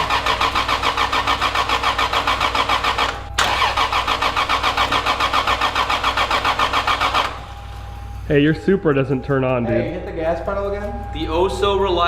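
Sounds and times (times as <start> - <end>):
car engine cranking: 0.0 - 7.6.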